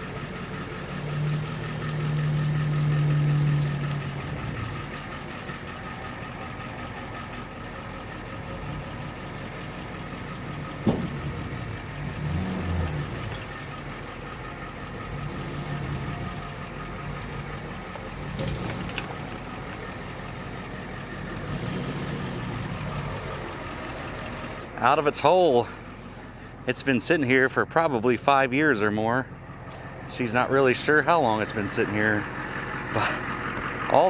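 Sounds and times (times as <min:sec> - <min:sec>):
truck engine under load: 0:00.0 - 0:34.0
clunk: 0:10.8 - 0:11.7, 0:18.2 - 0:19.9.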